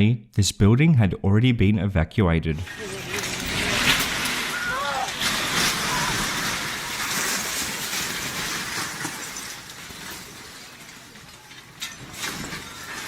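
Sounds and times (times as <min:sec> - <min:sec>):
rumble of falling rubble: 0:02.6 - 0:13.0.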